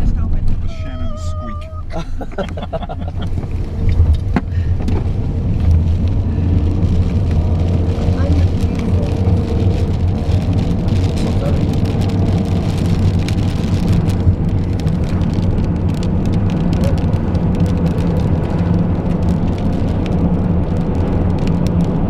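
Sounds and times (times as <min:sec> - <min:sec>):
raindrops ticking on car roof: 0:00.0 - 0:22.0
car engine running: 0:01.8 - 0:18.9.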